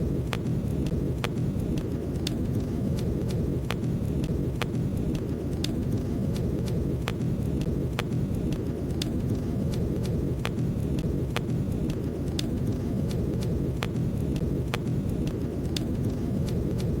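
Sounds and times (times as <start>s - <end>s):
fire crackling and popping: 0.0s - 17.0s
flames rushing: 0.0s - 17.0s.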